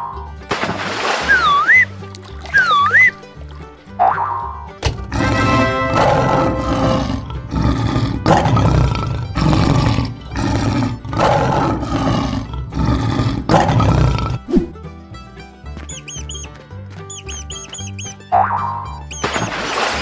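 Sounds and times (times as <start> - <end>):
lion roaring: 5.1 - 14.6.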